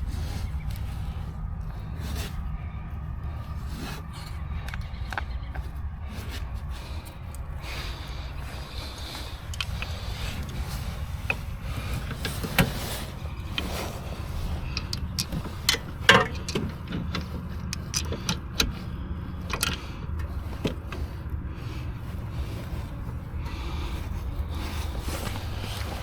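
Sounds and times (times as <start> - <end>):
low vehicle rumble: 0.0 - 26.0
clicks and knocks: 14.7 - 18.8.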